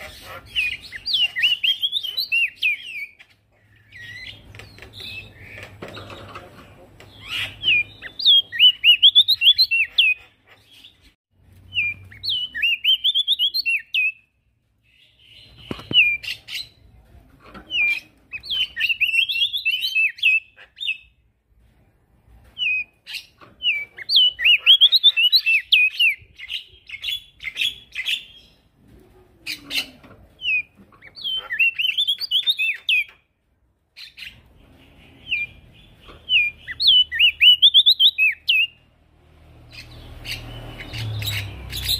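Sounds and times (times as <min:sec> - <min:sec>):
bird singing high chirping notes: 0:07.2 - 0:09.9, 0:11.7 - 0:14.3, 0:35.0 - 0:38.8.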